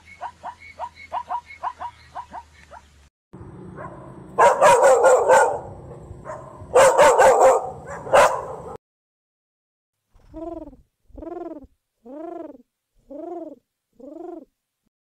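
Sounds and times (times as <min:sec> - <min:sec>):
dog barking: 0:00.2 - 0:02.9, 0:03.8 - 0:08.8
low hum: 0:03.4 - 0:06.9.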